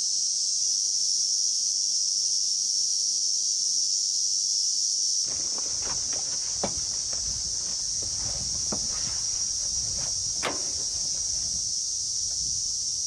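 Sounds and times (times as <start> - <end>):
footsteps scuffing: 5.3 - 12.5
insects chorus: 5.3 - 13.0.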